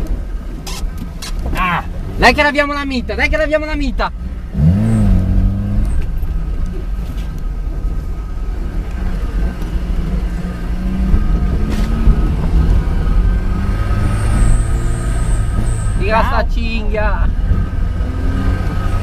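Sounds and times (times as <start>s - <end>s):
car engine low rumble: 0.0s - 19.0s.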